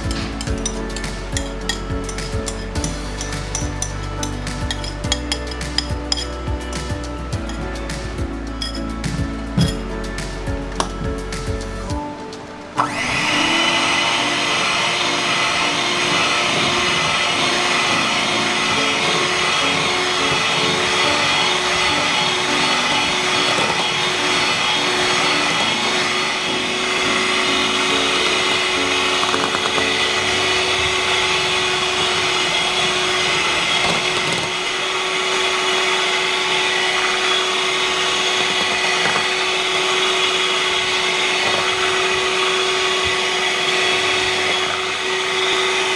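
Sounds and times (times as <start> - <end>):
kitchen appliance motor humming: 12.8 - 45.9.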